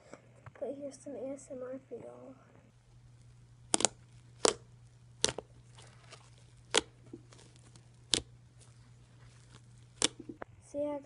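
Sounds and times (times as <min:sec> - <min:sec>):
slime air bubbles popping: 0:03.7 - 0:08.4, 0:09.4 - 0:10.4.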